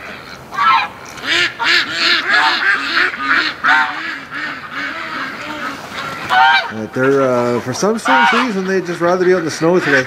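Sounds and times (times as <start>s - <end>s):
ducks quacking: 0.0s - 10.0s
geese honking: 0.0s - 10.0s.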